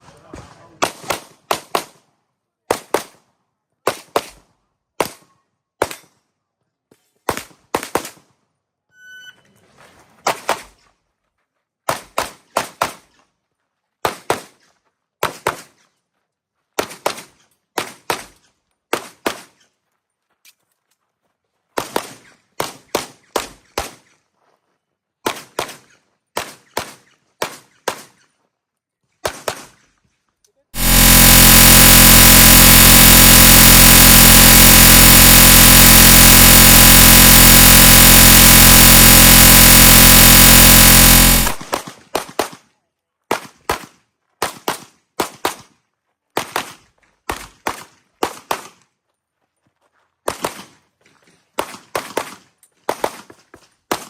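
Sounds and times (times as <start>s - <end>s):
short beep: 8.9s - 9.6s, 30.8s - 41.7s.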